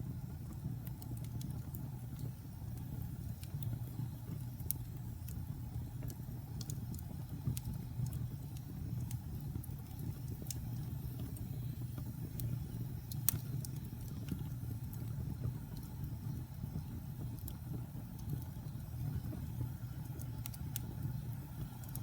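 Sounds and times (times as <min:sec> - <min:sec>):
wood fire burning in fireplace: 0:00.0 - 0:22.0.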